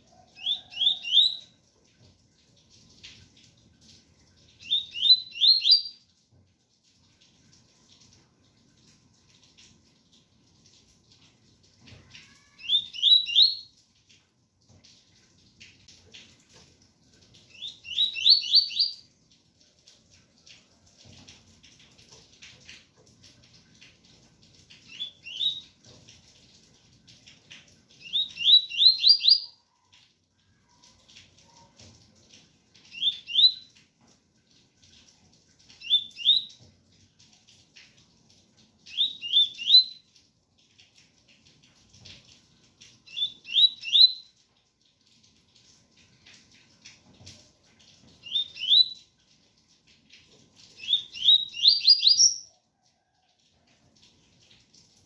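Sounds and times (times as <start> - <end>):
faint rain: 0.0 - 55.0
bird whistled song: 0.4 - 1.5, 4.6 - 6.0, 12.6 - 13.7, 17.6 - 19.0, 24.9 - 25.6, 28.0 - 29.5, 32.9 - 33.7, 35.8 - 36.5, 38.9 - 40.0, 43.1 - 44.3, 48.2 - 49.0, 50.8 - 52.5.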